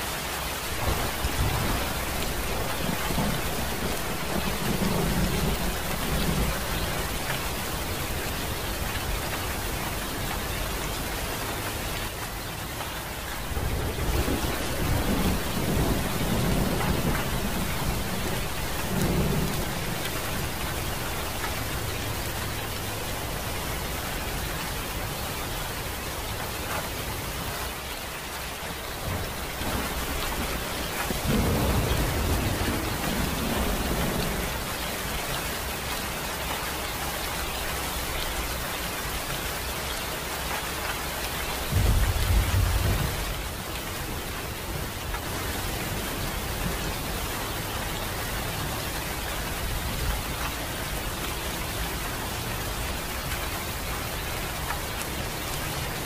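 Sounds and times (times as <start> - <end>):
rain falling: 0.0 - 56.0
thunder rolling: 0.7 - 9.2, 13.4 - 23.4, 29.0 - 34.7, 41.7 - 43.6.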